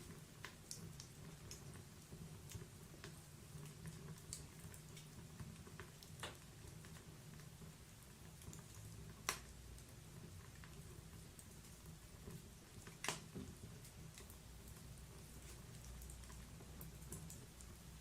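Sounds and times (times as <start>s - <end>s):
fire crackling and popping: 0.0s - 18.0s.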